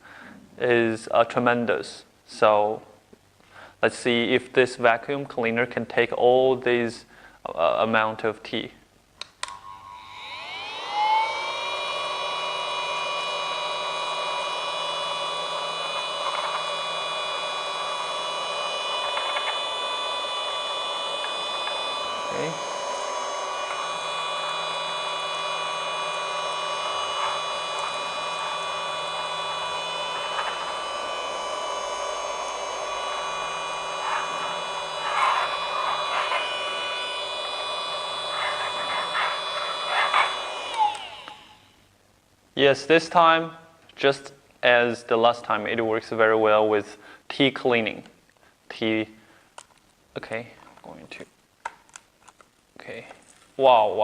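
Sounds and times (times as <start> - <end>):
small vacuum cleaner whining: 9.4 - 42.0.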